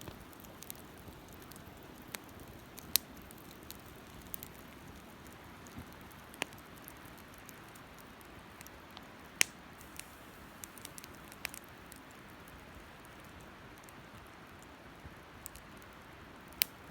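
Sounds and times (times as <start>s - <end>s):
campfire crackling and popping: 0.0s - 16.9s.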